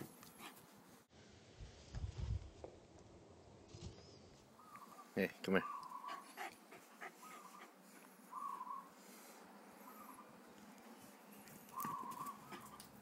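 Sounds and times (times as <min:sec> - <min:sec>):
faint hooting bird calls: 0:04.5 - 0:06.5, 0:07.1 - 0:12.9.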